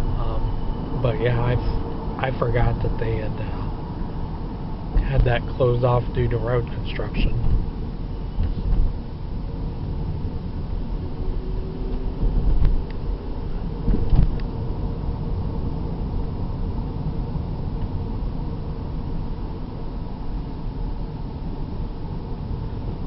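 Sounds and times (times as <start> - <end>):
car engine and road rumble: 0.0 - 23.0.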